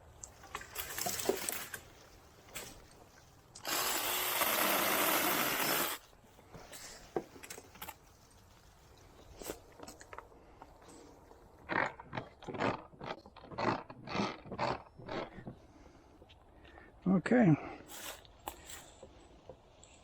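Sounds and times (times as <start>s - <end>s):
mini chainsaw cutting: 3.6s - 6.0s.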